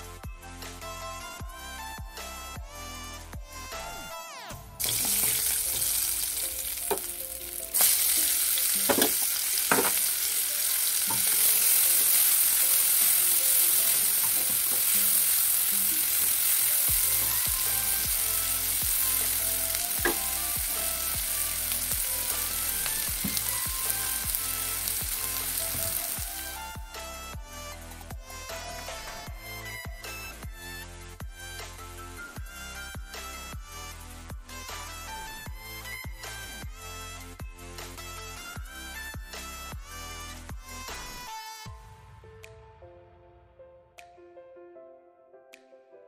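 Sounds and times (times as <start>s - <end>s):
spatula scraping and knocking pan: 4.8s - 15.3s, 19.9s - 20.4s
hot oil sizzling in a wok: 4.8s - 27.2s.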